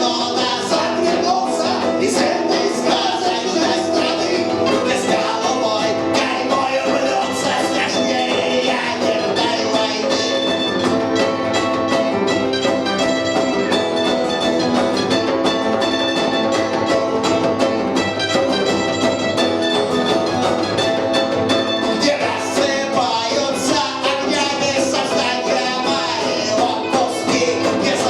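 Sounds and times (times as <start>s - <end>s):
person singing: 0.0s - 11.6s, 21.8s - 28.0s
punk rock band playing: 0.0s - 28.0s.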